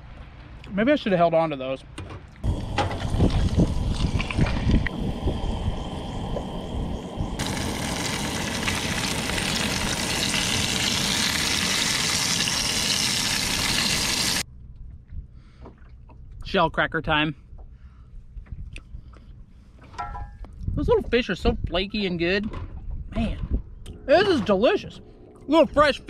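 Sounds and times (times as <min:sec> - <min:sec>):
fish sizzling in oil: 0:02.5 - 0:14.4.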